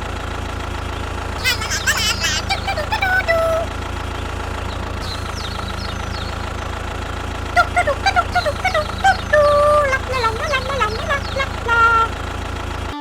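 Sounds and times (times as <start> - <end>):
tractor motor droning: 0.0 - 13.0.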